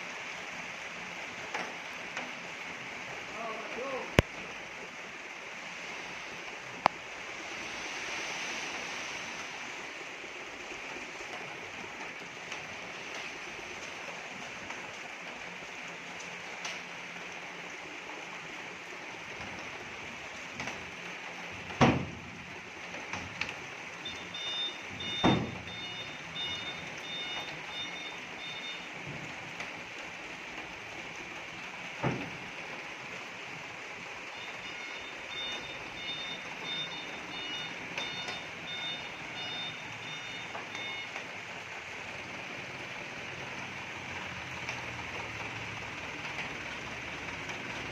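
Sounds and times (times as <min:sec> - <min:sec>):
rain hissing: 0:00.0 - 0:47.9
truck reversing beeper: 0:24.0 - 0:29.0, 0:34.3 - 0:41.2.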